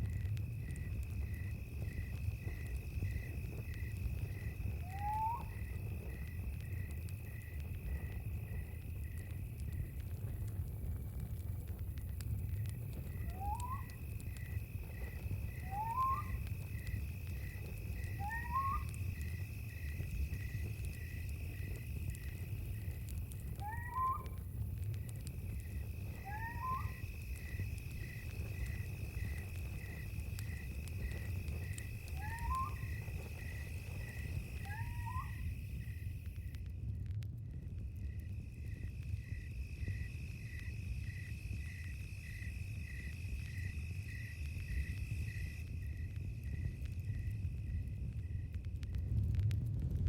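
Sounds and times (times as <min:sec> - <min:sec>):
steady low rumble: 0:00.0 - 0:15.7, 0:18.8 - 0:26.3, 0:35.4 - 0:43.7, 0:44.3 - 0:50.0
crickets chirping: 0:00.0 - 0:36.6, 0:37.7 - 0:49.2.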